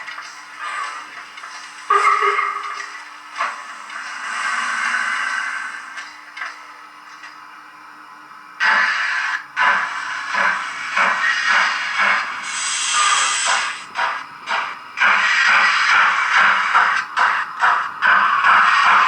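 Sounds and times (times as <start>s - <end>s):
steam locomotive chuffs: 0.0s - 7.2s, 8.6s - 19.0s
sharp steam hiss: 10.9s - 14.1s.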